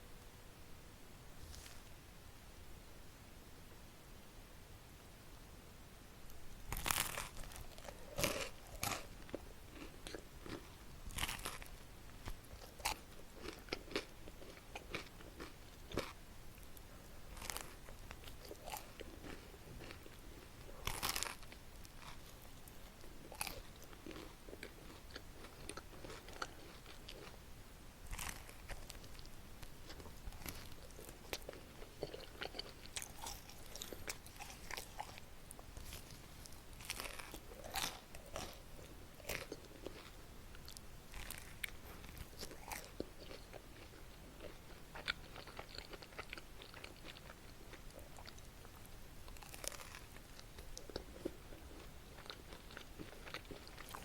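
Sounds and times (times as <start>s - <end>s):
crisp crunching bites: 6.7s - 11.8s, 20.8s - 22.4s, 28.1s - 29.1s, 35.8s - 38.6s
crunchy chewing: 6.7s - 27.4s, 28.0s - 54.0s.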